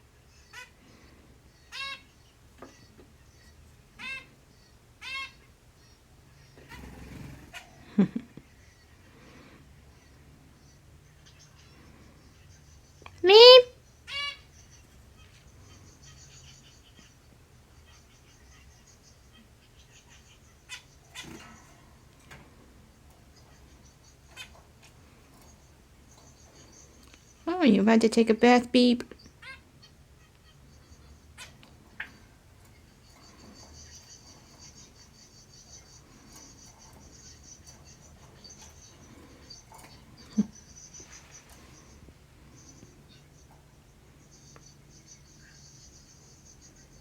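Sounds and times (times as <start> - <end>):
finch calling: 23.3 - 27.4, 29.1 - 42.0.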